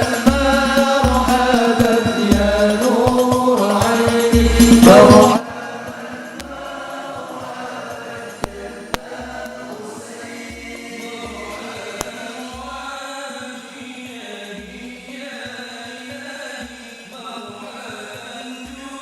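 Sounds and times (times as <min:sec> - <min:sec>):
low beat: 0:00.0 - 0:05.4
group chanting in unison: 0:00.0 - 0:14.8.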